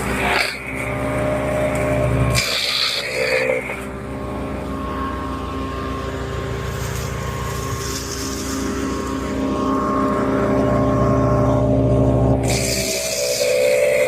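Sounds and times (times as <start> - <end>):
wood chipper engine running: 0.0 - 14.0
loud rushing noise: 5.1 - 12.8.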